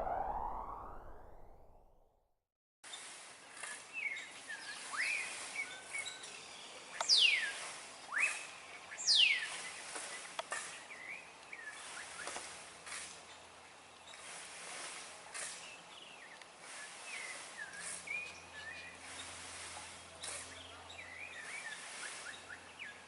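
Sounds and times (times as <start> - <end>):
loud downward whistles: 0.0 - 2.1
outdoor background noise: 2.8 - 23.0
birds chirping: 3.8 - 12.4, 15.6 - 23.0.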